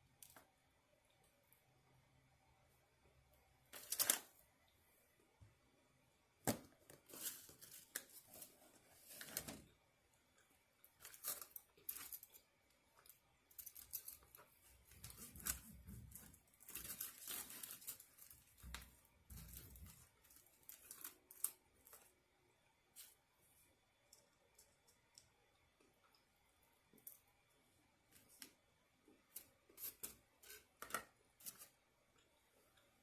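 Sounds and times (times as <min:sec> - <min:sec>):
packaging crinkling and rustling: 0:03.7 - 0:04.4, 0:11.0 - 0:22.1.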